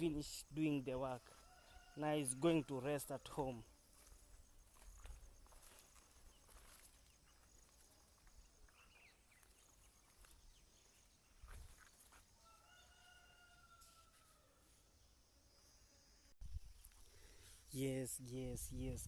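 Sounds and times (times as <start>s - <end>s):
distant rooster crowing: 1.2s - 3.4s, 12.4s - 14.9s.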